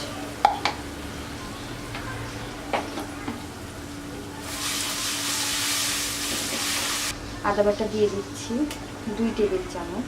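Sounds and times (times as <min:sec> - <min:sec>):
food sizzling in oil: 0:00.0 - 0:07.2.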